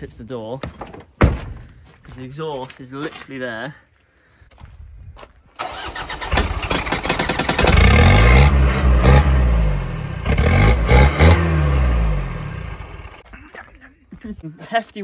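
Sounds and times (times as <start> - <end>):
engine cranking on starter: 5.6 - 9.2
engine running and revving: 6.3 - 13.2.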